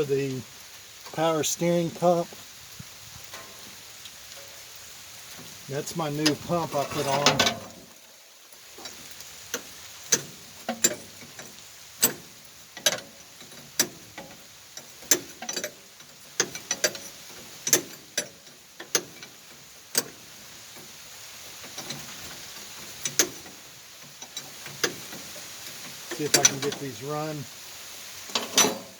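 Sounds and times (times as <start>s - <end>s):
rain hissing: 0.0s - 28.9s
metallic clicks and knocks of tools: 28.3s - 28.9s.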